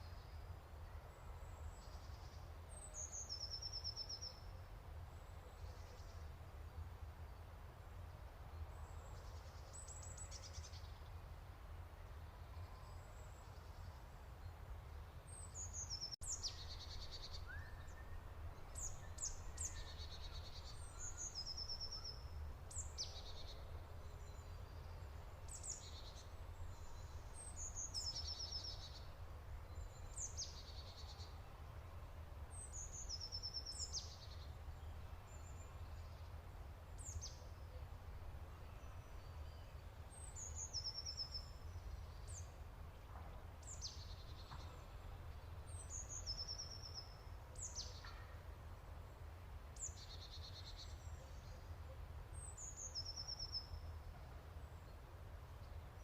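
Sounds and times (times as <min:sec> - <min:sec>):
small birds chirping: 0:15.2 - 0:31.5.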